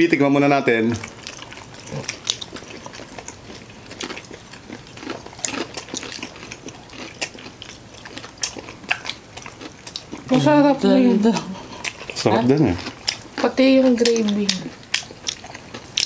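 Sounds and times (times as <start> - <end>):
crunchy bites and chewing: 0.9 - 10.4, 11.8 - 16.0.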